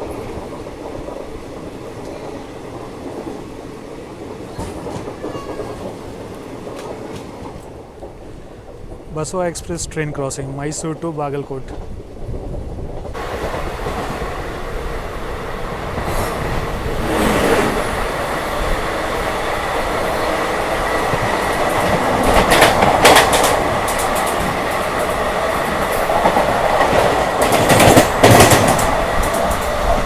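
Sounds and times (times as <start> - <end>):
express train rushing past: 0.0 - 30.0
train running noise: 0.0 - 30.0
rapid wheel clatter over rail joints: 11.8 - 30.0.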